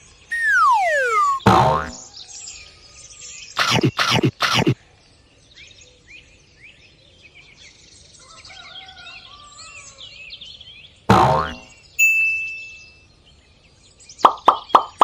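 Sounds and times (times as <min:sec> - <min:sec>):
small birds chirping: 0:00.3 - 0:01.9, 0:03.5 - 0:04.8
loud sound dropping in pitch: 0:00.3 - 0:02.0.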